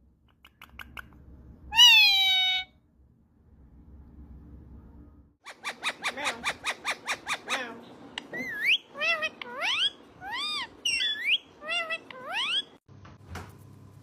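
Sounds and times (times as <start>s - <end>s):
parrot chirps and whistled calls: 1.7s - 2.7s, 5.5s - 12.8s.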